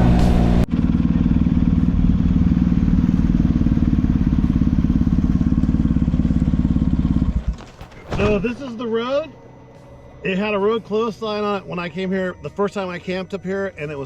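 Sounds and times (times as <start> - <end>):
motorcycle engine running: 0.0 - 8.0
music: 8.0 - 14.0.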